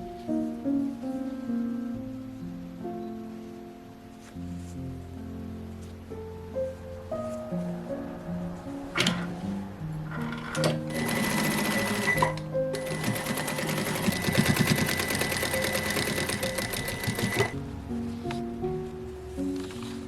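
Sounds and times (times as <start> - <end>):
sewing machine stitching: 10.2 - 17.6.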